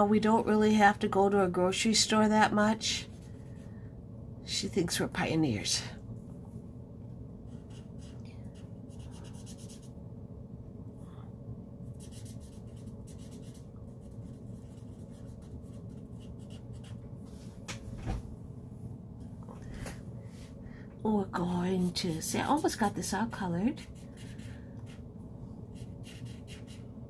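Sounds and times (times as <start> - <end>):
marker scratching on paper: 7.5 - 9.9, 12.0 - 17.0, 23.7 - 25.0, 25.7 - 26.9.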